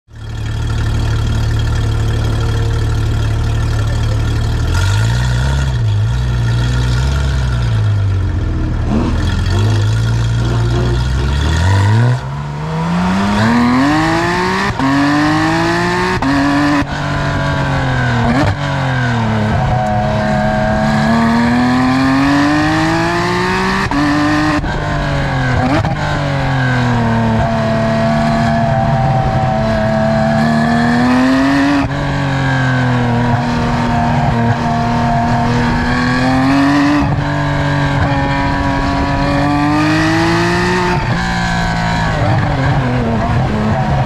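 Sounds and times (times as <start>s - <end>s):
sports car engine revving: 0.2s - 44.0s
car accelerating through gears: 8.8s - 44.0s.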